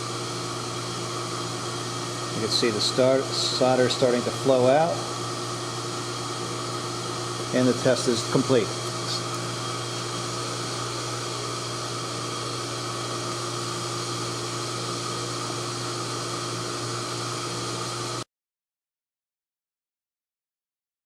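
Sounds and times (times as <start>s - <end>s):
electrical hum: 0.0s - 18.2s
fan-like hiss: 0.0s - 18.2s.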